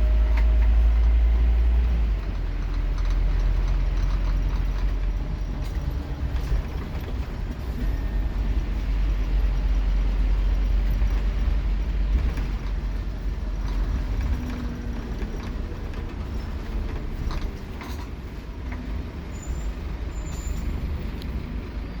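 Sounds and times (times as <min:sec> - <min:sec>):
bus engine and road rumble: 0:00.0 - 0:22.0
rattles and knocks: 0:02.1 - 0:07.6.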